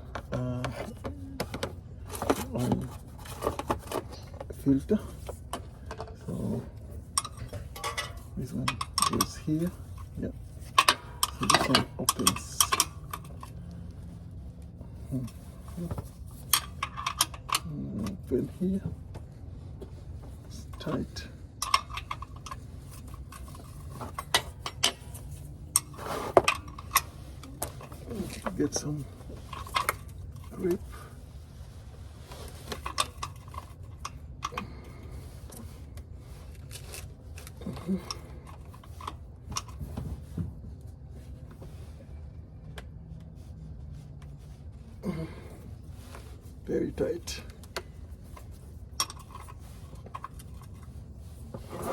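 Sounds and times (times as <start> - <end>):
wrench clicking and scraping: 0.1 - 13.7, 15.0 - 18.3, 20.6 - 31.1, 32.2 - 39.9, 47.0 - 51.9
metal tool clinking: 2.0 - 13.7, 15.0 - 18.4, 20.6 - 31.1
metal tool scraping: 20.7 - 31.1, 48.3 - 51.9
person grunting: 45.0 - 45.6.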